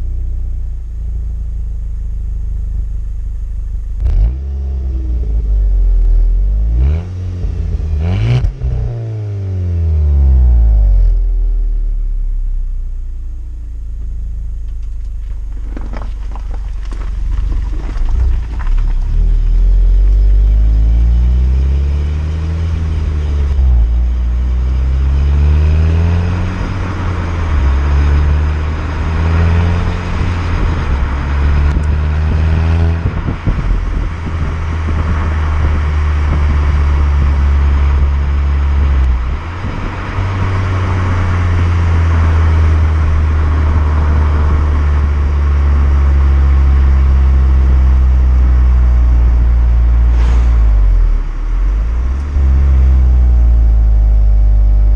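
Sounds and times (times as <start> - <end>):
car engine accelerating through gears: 4.0 - 12.0, 19.0 - 54.9.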